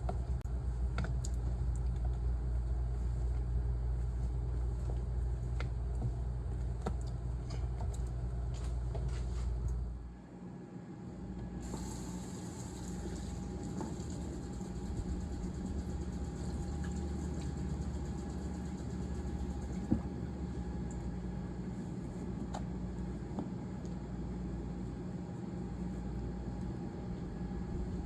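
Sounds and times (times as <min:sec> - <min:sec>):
low mechanical hum: 0:00.0 - 0:28.0
hiss: 0:11.6 - 0:13.3.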